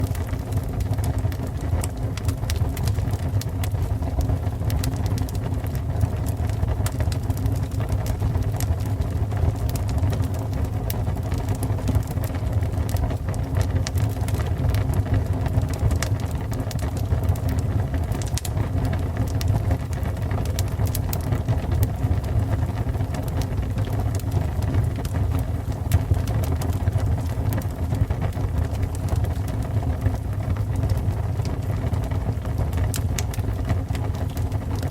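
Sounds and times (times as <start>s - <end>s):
fire crackling: 0.0s - 34.9s.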